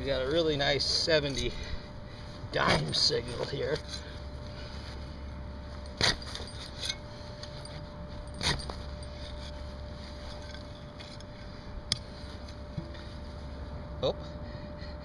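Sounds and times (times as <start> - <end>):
steady low rumble: 0.0 - 15.0
digging tool cuts and knocks: 6.0 - 7.0, 8.3 - 9.5.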